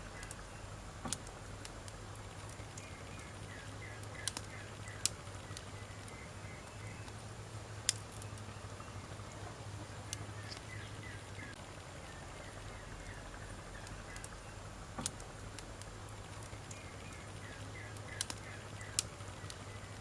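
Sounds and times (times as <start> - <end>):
burning logs popping: 0.0 - 20.0
campfire hissing and crackling: 0.0 - 20.0.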